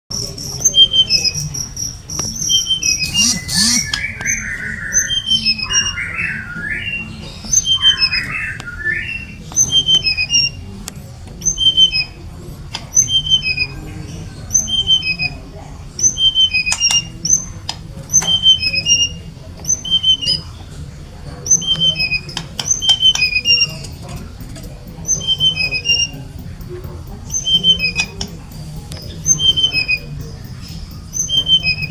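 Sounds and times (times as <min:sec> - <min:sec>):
bird singing high phrases: 0:00.2 - 0:10.6, 0:11.4 - 0:12.2, 0:18.1 - 0:20.5
lower harsher bird notes: 0:02.4 - 0:10.6.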